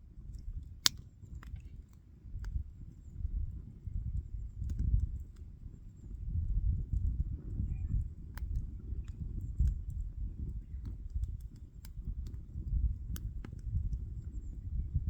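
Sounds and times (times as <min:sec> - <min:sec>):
wood fire crackling: 0:00.2 - 0:02.8.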